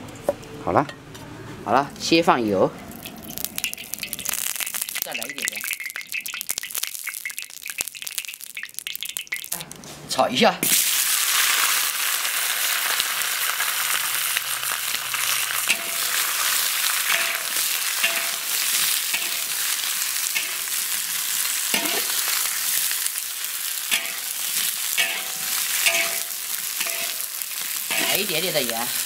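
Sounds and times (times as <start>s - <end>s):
pepper sizzling in hot oil: 2.9s - 10.0s, 10.6s - 29.0s
metal spatula scraping wok: 15.1s - 21.1s, 21.7s - 23.0s, 23.9s - 29.0s.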